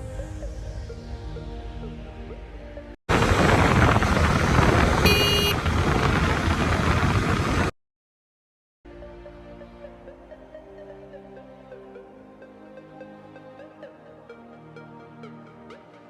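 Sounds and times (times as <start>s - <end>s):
brief high tone: 4.8s - 5.8s.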